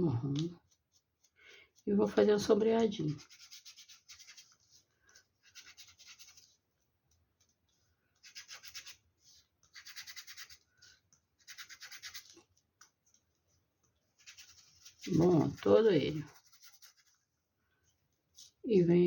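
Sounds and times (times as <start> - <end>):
small brush rubbing on foam: 3.0 - 6.8, 8.2 - 12.5, 13.1 - 18.6.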